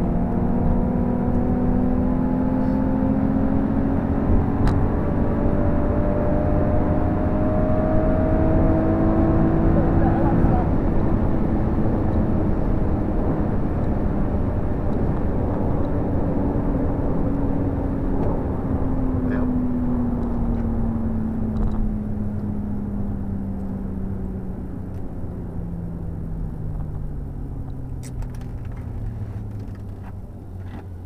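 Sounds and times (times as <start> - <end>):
road and wind noise: 0.0 - 31.0
car engine slowing down: 9.4 - 31.0.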